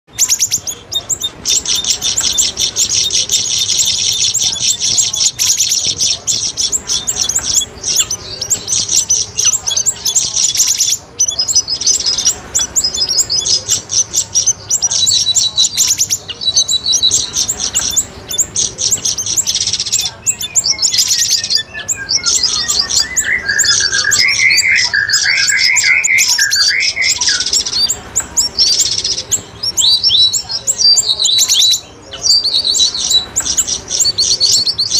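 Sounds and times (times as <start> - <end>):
bird warbling song: 0.1 - 34.9
birds chirping and trilling: 0.1 - 34.9.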